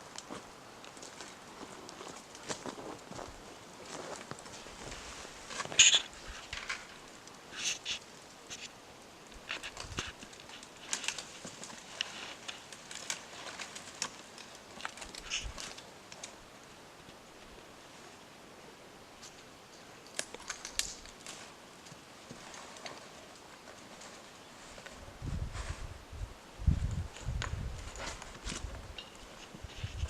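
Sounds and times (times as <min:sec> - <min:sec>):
footsteps on rough ground: 0:00.2 - 0:07.1.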